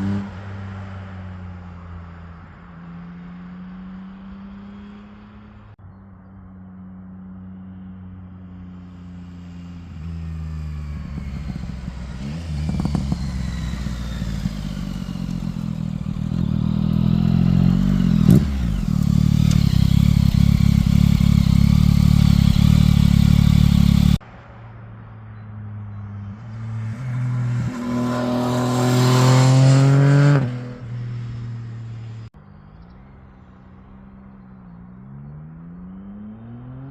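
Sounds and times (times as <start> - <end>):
motorcycle engine revving: 9.4 - 24.2, 26.3 - 32.4, 34.9 - 36.9.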